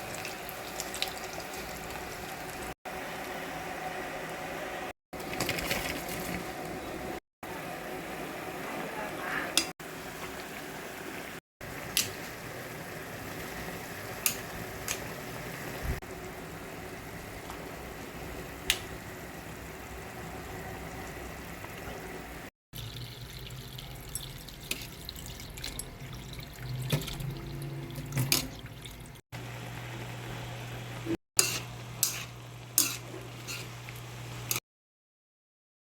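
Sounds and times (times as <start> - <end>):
water running from a tap: 0.0 - 2.8, 22.8 - 29.2.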